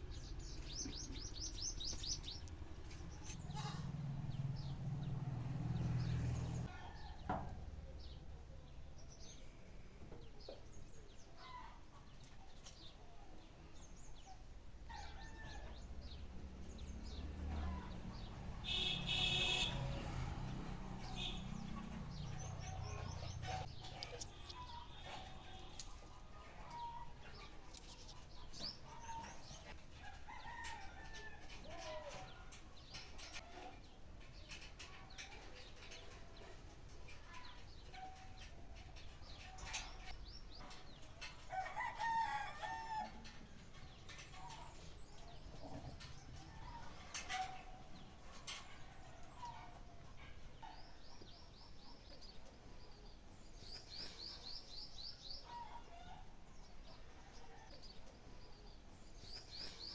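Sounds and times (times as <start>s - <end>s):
birds chirping: 0.0s - 6.7s, 15.0s - 43.0s
drawn-out bird call: 18.6s - 20.0s.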